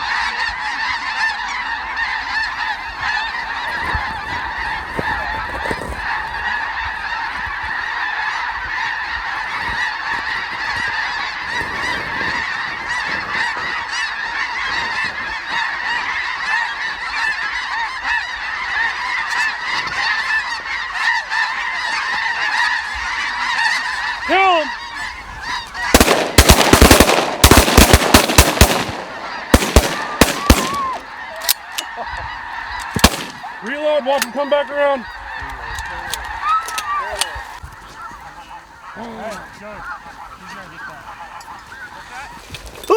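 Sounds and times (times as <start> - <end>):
snow geese honking: 0.0 - 42.9
shotgun shots: 25.9 - 31.1, 32.9 - 33.5.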